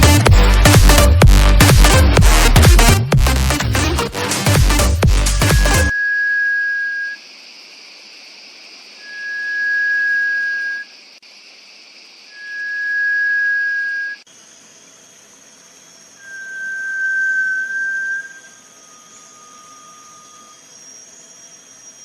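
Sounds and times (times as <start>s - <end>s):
steady high hiss: 5.3s - 22.0s
bird whistling a long note: 5.4s - 7.2s, 9.0s - 10.9s, 12.3s - 14.2s, 16.2s - 22.0s.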